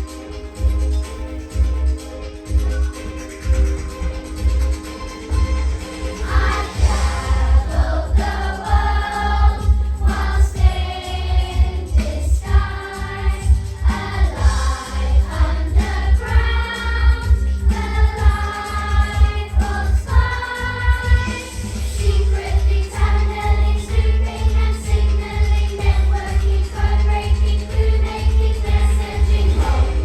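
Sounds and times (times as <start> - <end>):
musical accompaniment: 0.0 - 30.0
children singing in unison: 6.2 - 30.0.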